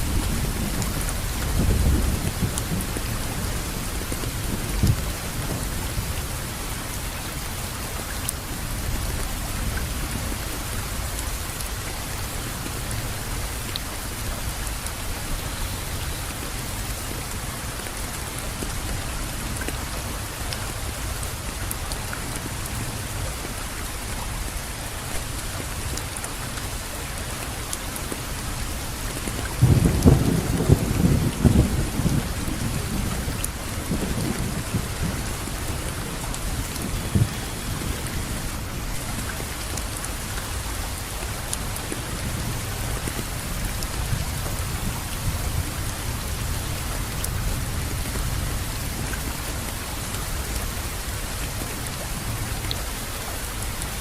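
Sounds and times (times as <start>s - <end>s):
steady rain falling: 0.0s - 54.0s
thunder rumble: 29.6s - 39.2s.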